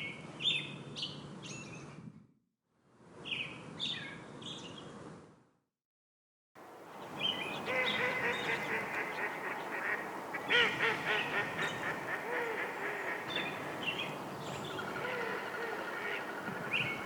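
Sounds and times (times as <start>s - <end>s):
outdoor hiss: 6.6s - 17.0s
geese honking: 7.0s - 17.0s.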